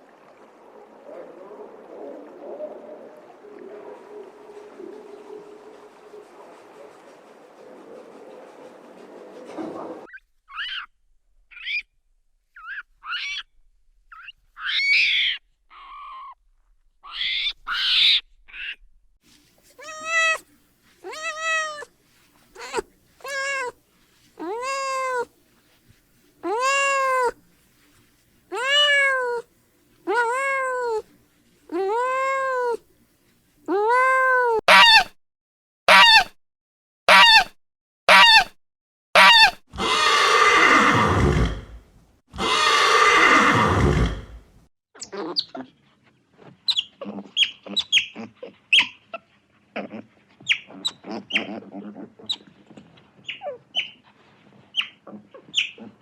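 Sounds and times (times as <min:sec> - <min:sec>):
drawn-out meow-like animal calls: 0:19.8 - 0:20.4, 0:21.0 - 0:21.9, 0:22.6 - 0:23.7, 0:24.4 - 0:25.3, 0:26.4 - 0:27.4, 0:28.5 - 0:29.4, 0:30.1 - 0:31.0, 0:31.7 - 0:32.8, 0:33.7 - 0:35.1, 0:35.9 - 0:36.3, 0:37.1 - 0:37.5, 0:38.1 - 0:38.5, 0:39.2 - 0:41.4, 0:42.4 - 0:44.2
long harsh animal calls: 0:19.8 - 0:20.4, 0:21.0 - 0:21.8, 0:22.6 - 0:23.7, 0:24.4 - 0:25.3, 0:26.4 - 0:27.3, 0:34.7 - 0:35.1, 0:35.9 - 0:36.3, 0:37.1 - 0:37.5, 0:38.1 - 0:38.5, 0:39.2 - 0:41.8, 0:42.4 - 0:44.4.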